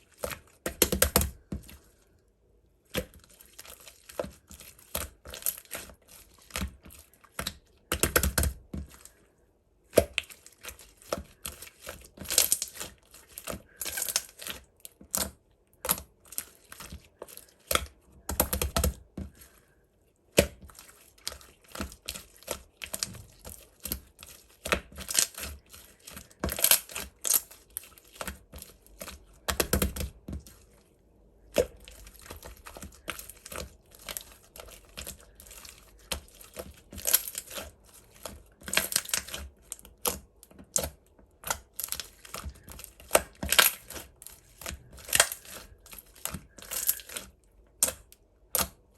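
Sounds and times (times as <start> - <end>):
slime squishing and popping: 21.3 - 30.4, 31.4 - 48.8.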